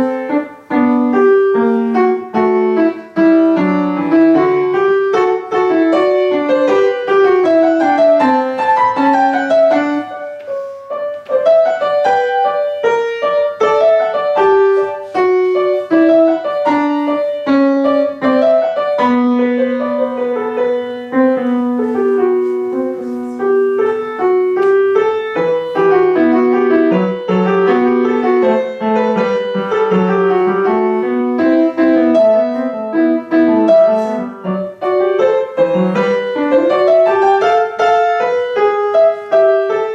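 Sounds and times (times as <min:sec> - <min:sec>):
piano piece: 0:00.0 - 0:39.9.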